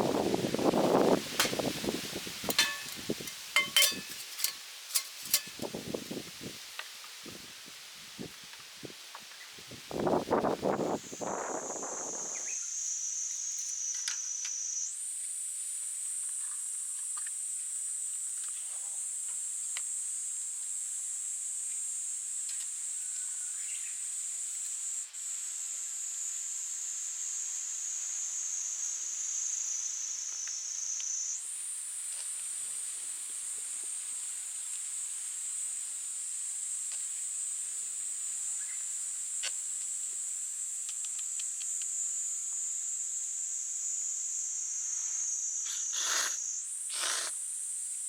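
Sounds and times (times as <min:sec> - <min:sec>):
insect chorus shrilling: 0:10.4 - 0:15.0, 0:43.9 - 0:48.0.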